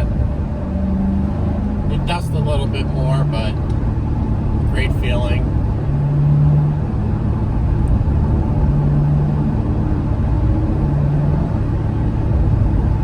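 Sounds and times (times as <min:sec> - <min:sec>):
car engine and exhaust cruising: 0:00.0 - 0:13.0.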